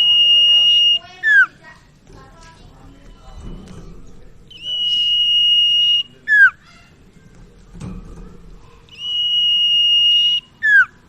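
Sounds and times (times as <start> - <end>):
bird whistling song: 0.0 - 1.6, 4.5 - 6.8, 8.9 - 11.0.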